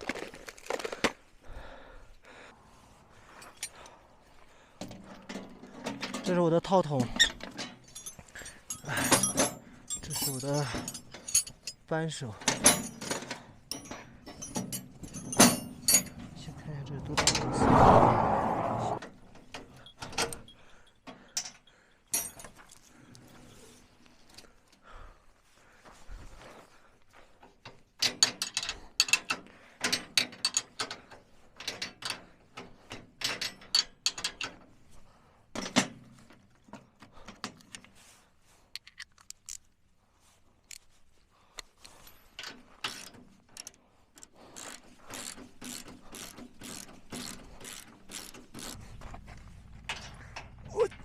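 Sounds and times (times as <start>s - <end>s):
metal clinks: 7.2s - 16.5s, 19.5s - 23.4s
ratchet wrench clicking: 44.5s - 49.0s.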